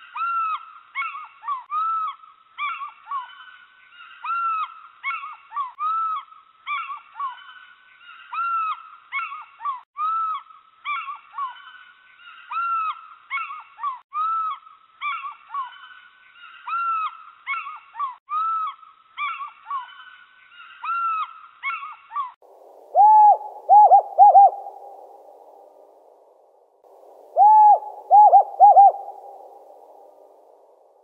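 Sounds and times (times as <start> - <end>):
birds calling: 19.2 - 25.9, 27.2 - 30.9
lower-pitched bird call: 22.8 - 25.8, 27.2 - 30.7.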